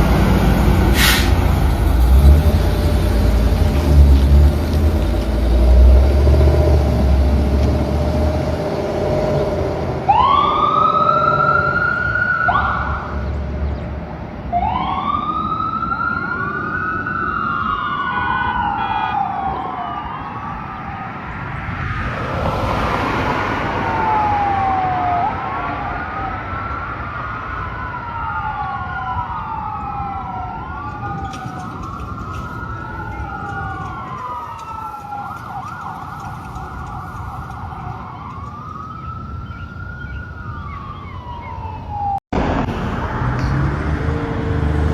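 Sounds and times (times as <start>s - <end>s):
heavy engine rumble: 0.0s - 10.6s, 29.8s - 39.4s, 41.7s - 44.9s
fire engine siren wailing: 0.0s - 44.9s.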